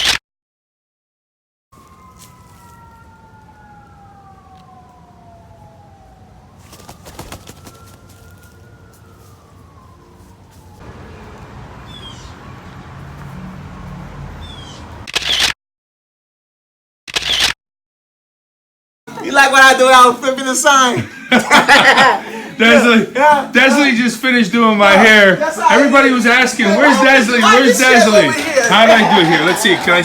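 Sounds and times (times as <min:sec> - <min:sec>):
siren wailing: 0:01.7 - 0:12.3, 0:23.5 - 0:30.0.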